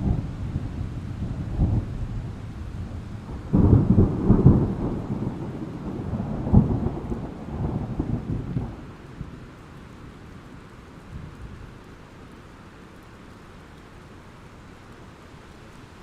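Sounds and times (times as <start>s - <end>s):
low roll of thunder: 0.0s - 9.5s
steady hiss of rain: 0.0s - 16.0s.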